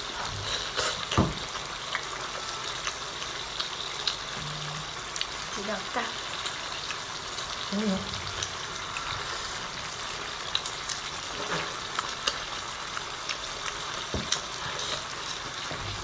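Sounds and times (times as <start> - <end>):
steady hiss: 4.0 - 13.3.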